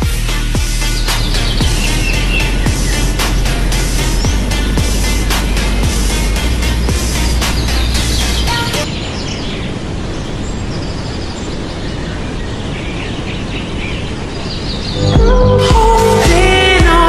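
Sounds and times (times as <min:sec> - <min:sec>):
music: 0:00.0 - 0:08.8, 0:15.0 - 0:17.0
birds chirping: 0:00.0 - 0:17.0
steady rushing noise: 0:00.0 - 0:17.0.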